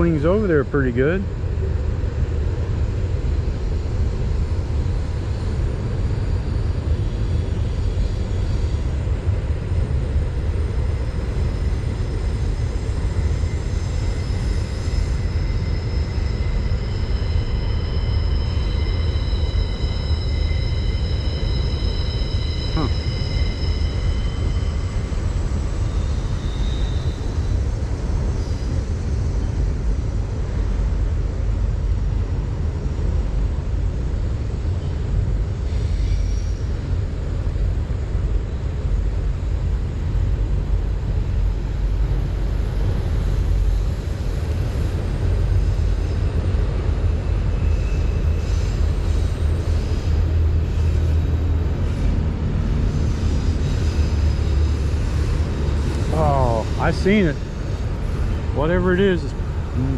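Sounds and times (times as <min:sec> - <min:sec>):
faint high chirps: 0:16.1 - 0:24.8.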